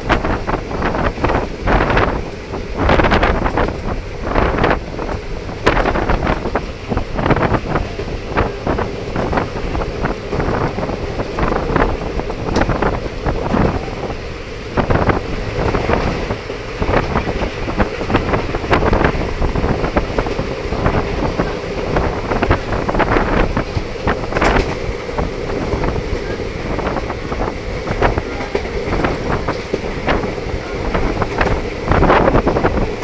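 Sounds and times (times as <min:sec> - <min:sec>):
train running rumble: 0:00.0 - 0:33.0
wind buffeting microphone: 0:00.0 - 0:33.0
wheels knocking and clattering: 0:03.0 - 0:33.0.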